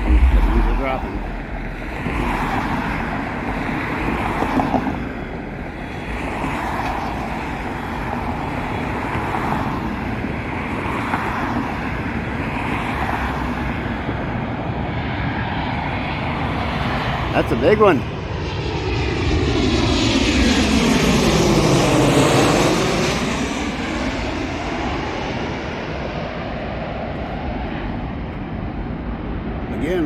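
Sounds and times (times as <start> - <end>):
cars passing: 0.0 - 15.3.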